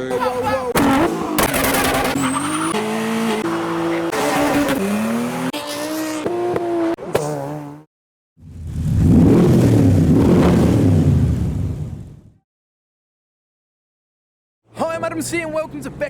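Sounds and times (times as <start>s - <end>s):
car engines revving and accelerating: 0.0s - 12.2s.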